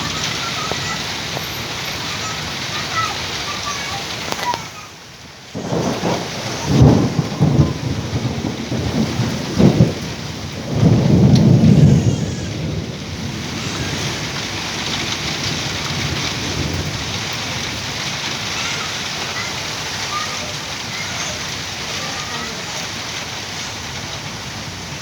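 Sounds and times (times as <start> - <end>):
steady rain: 0.0 - 25.0
thunder cracks and rumble: 5.5 - 25.0.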